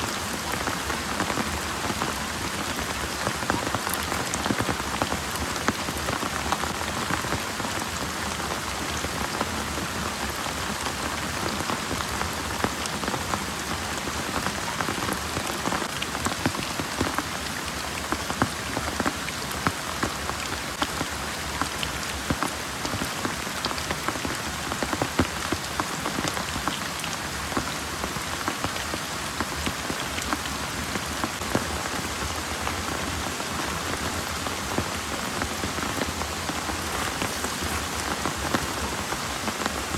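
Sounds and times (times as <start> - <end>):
heavy rain pouring: 0.0 - 39.9
raindrops ticking on surface: 0.1 - 39.9.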